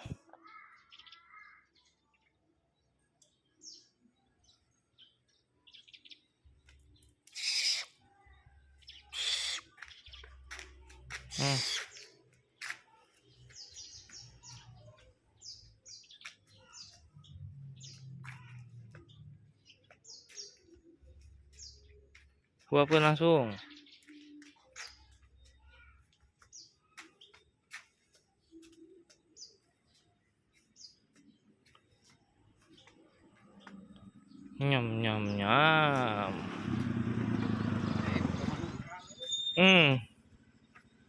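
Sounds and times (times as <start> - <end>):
barn owl screeching: 7.3 - 8.0, 9.1 - 9.7, 11.3 - 12.0
short high bird chirps: 9.0 - 9.8, 39.0 - 39.9.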